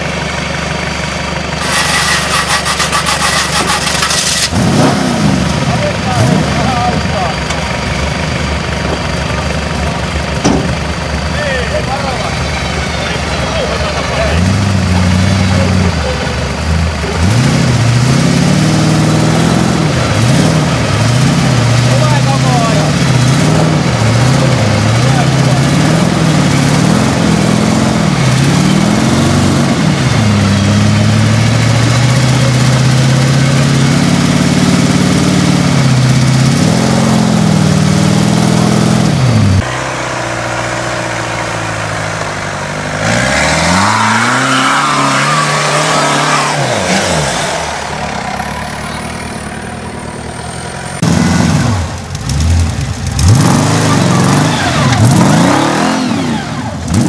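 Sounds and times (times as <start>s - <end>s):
off-road engines revving: 0.0s - 57.0s.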